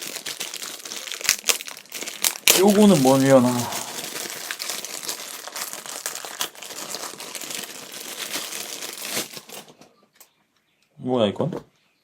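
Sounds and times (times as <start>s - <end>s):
packaging crinkling: 0.0s - 9.9s.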